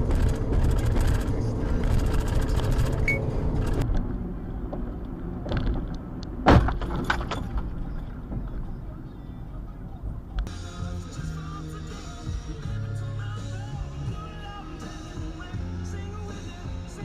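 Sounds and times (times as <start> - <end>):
car engine and road rumble: 0.0 - 17.0
loud thump: 6.4 - 7.2.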